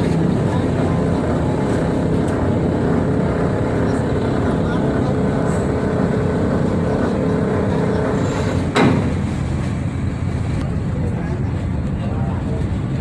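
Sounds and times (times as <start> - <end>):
ferry engines rumbling: 0.0 - 13.0
sharp knock: 8.7 - 9.4.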